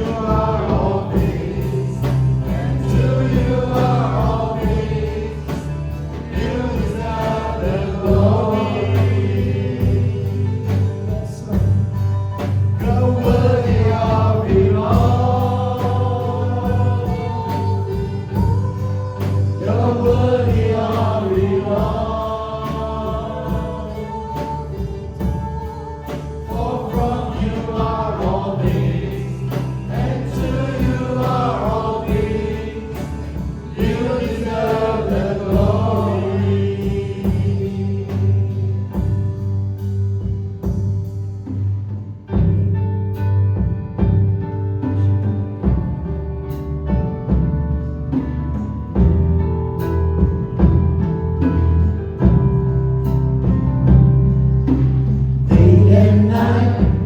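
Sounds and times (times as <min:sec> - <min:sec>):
group of voices singing: 0:00.0 - 0:39.5, 0:54.7 - 0:57.0
band with steady bass: 0:00.0 - 0:57.0.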